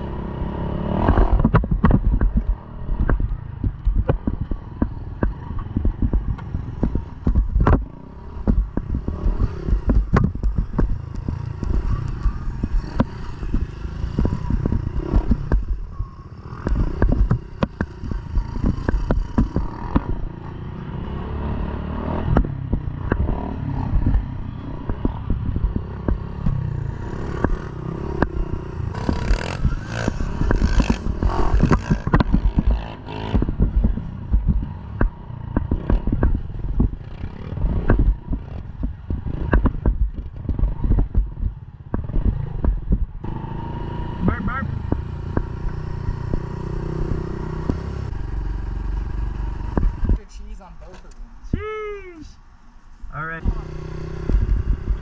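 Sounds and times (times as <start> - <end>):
motorcycle engine rumble: 0.0 - 55.0
rattling and knocks: 1.1 - 16.0.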